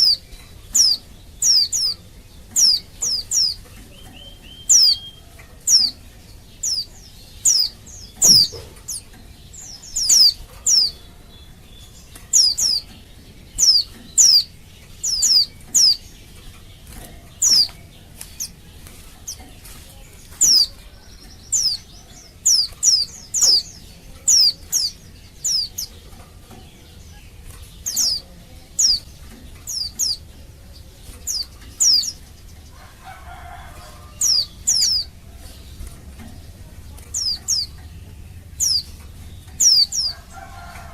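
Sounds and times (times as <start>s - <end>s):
bird high downward calls: 0.0s - 18.6s.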